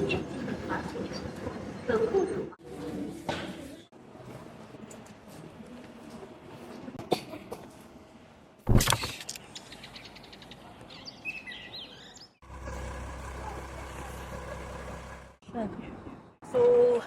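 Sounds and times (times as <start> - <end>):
bird chirps: 9.3 - 12.4.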